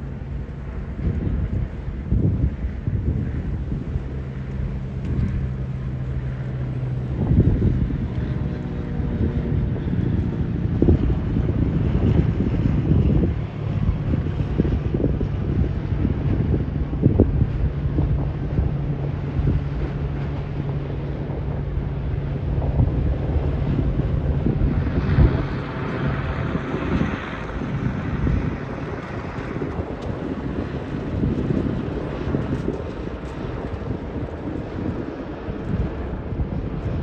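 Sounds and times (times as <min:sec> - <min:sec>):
steady low hum: 0:00.0 - 0:37.0
wind buffeting microphone: 0:00.0 - 0:37.0.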